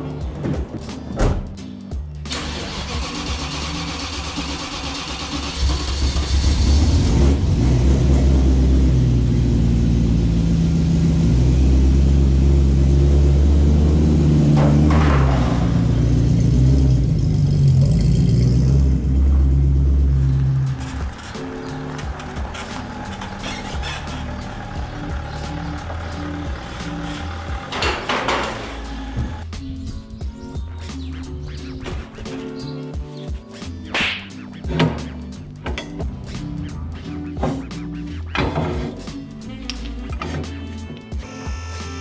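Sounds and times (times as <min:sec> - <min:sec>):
background music: 0:00.0 - 0:42.0
car engine running: 0:02.3 - 0:29.4.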